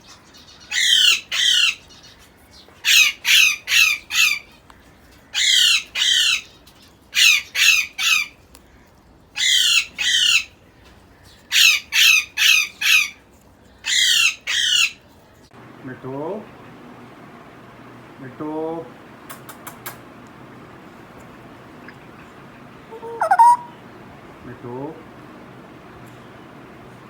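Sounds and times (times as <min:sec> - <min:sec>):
parrot squawking: 0:00.7 - 0:01.8, 0:02.9 - 0:04.4, 0:05.4 - 0:06.5, 0:09.4 - 0:10.5, 0:11.5 - 0:13.1, 0:13.9 - 0:15.0, 0:22.8 - 0:23.8.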